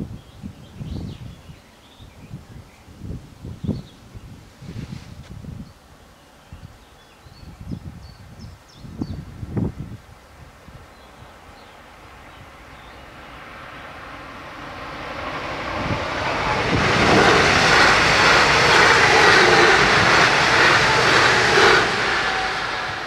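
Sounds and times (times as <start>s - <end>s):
train wheels rushing on rails: 11.9s - 23.0s.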